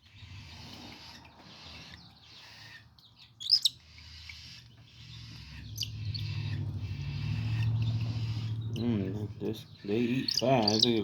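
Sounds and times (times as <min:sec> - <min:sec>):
chicks raspy begging calls: 0:00.2 - 0:11.0
low steady hum: 0:03.8 - 0:11.0.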